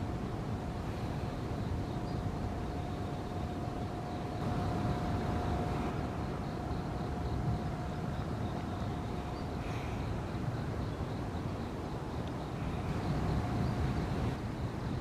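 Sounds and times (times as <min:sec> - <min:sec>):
faint continuous tone: 0:00.0 - 0:15.0
low outdoor rumble: 0:00.0 - 0:15.0
faint high ticks: 0:12.2 - 0:13.1.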